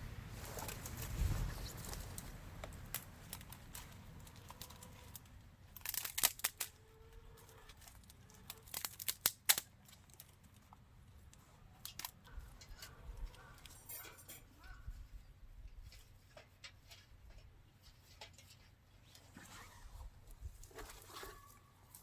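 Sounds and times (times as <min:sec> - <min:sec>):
crinkling and tearing: 0:00.4 - 0:13.9.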